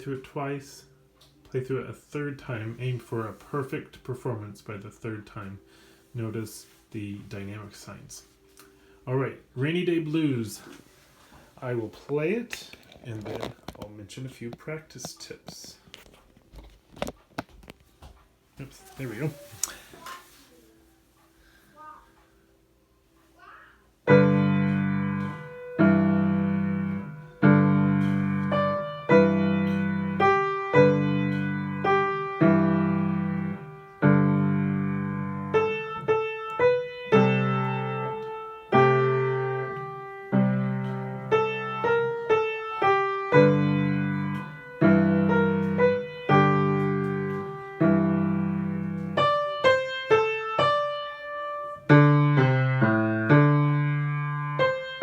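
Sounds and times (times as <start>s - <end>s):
slow blues piano: 24.1s - 55.0s.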